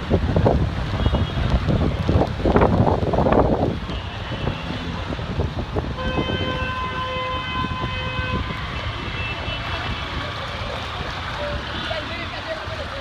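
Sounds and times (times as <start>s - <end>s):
traffic rumble: 0.0s - 13.0s
vehicle horn: 6.0s - 10.0s.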